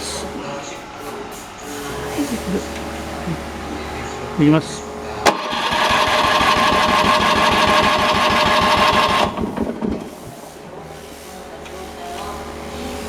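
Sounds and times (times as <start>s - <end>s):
electric starter cranking engine: 1.9s - 10.1s.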